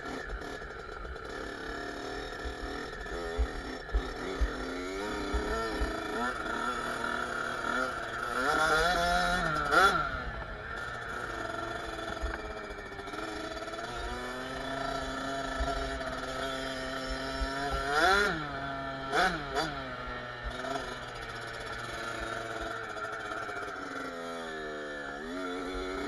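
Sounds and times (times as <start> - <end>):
engine revving: 0.0 - 26.0
two-stroke engine running: 0.0 - 26.0.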